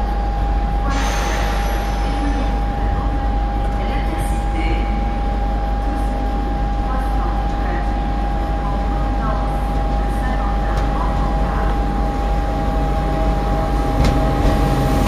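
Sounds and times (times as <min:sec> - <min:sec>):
train rumble: 0:00.0 - 0:15.0
high-pitched whine: 0:00.7 - 0:03.8.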